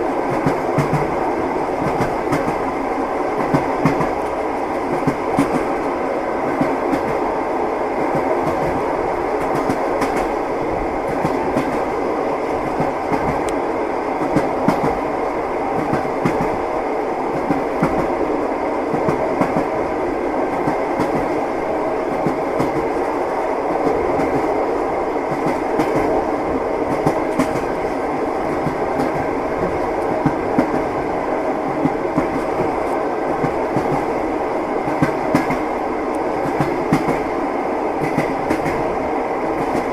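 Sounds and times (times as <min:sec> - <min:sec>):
train carriage rumble: 0:00.0 - 0:39.9.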